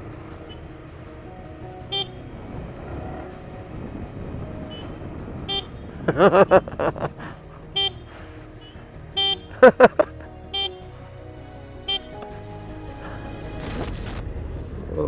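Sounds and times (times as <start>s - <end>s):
wavering horn blasts: 0.0s - 6.1s, 7.5s - 9.7s.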